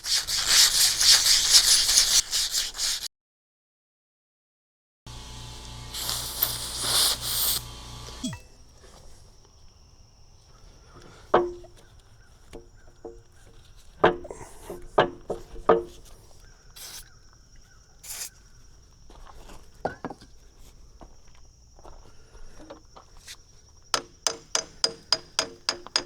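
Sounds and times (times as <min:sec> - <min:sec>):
diesel engine running and stopping: 0:05.1 - 0:08.4.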